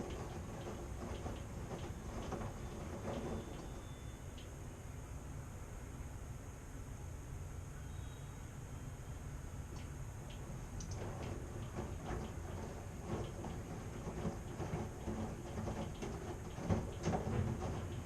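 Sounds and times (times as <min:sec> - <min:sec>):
washing machine drum knocking: 0:00.0 - 0:03.9, 0:10.9 - 0:18.0
washing machine hum: 0:00.0 - 0:18.0.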